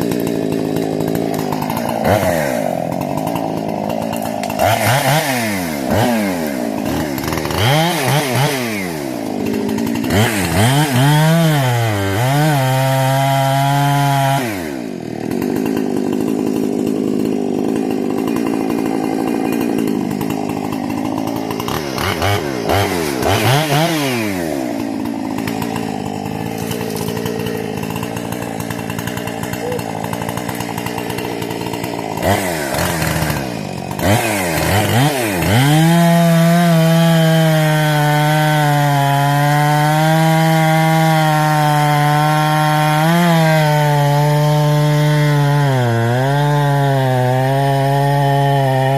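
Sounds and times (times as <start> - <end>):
chainsaw revving: 0.0 - 48.9.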